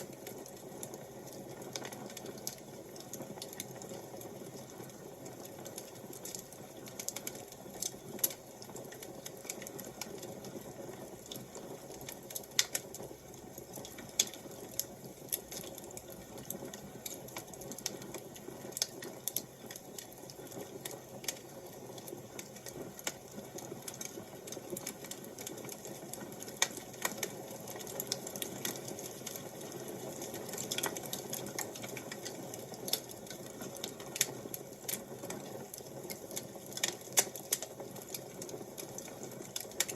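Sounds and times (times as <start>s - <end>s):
wood fire crackling: 0.0s - 39.9s
sharp pops and snaps: 11.3s - 13.0s, 13.6s - 20.1s, 23.8s - 39.9s.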